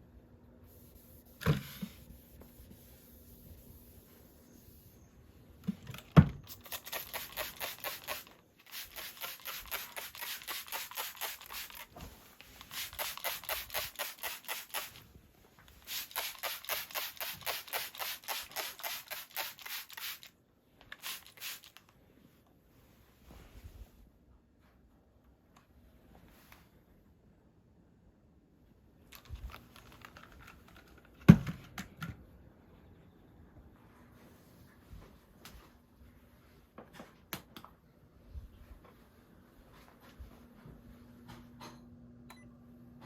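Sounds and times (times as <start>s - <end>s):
brushing strokes on dog: 0.7s - 5.0s, 6.5s - 15.0s, 15.8s - 20.3s, 21.0s - 21.8s.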